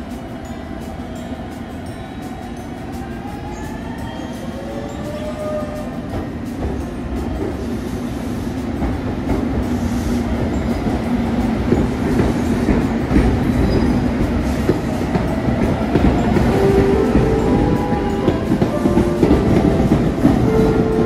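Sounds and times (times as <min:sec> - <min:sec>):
train low hum: 0:00.0 - 0:21.0
train wheels clicking over rail joints: 0:05.9 - 0:21.0.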